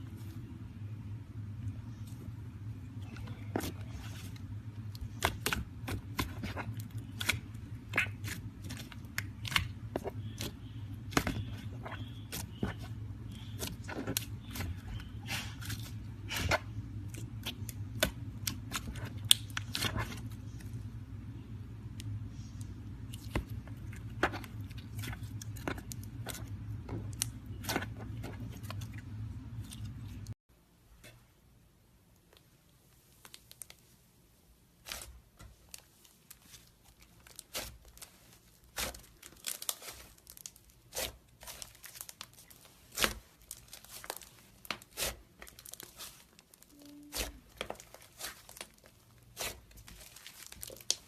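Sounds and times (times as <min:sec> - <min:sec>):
steady low hum: 0:00.0 - 0:33.1.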